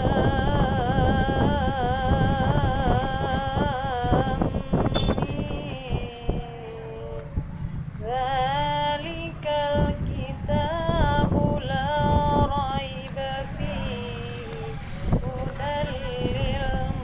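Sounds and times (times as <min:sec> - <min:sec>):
low rumble: 0:00.0 - 0:06.6
high voice singing held notes: 0:00.0 - 0:17.0.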